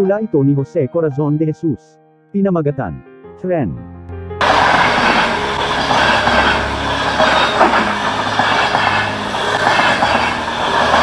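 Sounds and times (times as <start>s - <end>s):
train wheels rushing on rails: 4.4s - 11.0s
wheels clicking over rail joints: 4.4s - 11.0s.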